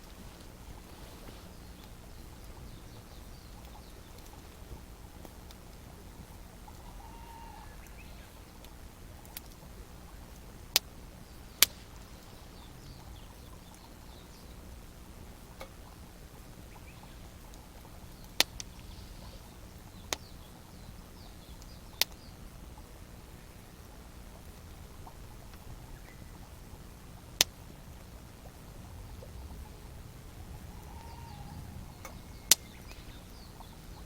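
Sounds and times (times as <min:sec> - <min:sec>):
campfire crackling and popping: 0:00.0 - 0:34.0
faint birdsong: 0:00.0 - 0:34.0.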